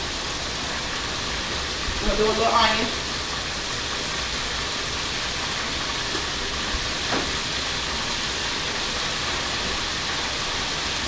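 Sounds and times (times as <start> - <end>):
meat sizzling in a pan: 0.0 - 11.0.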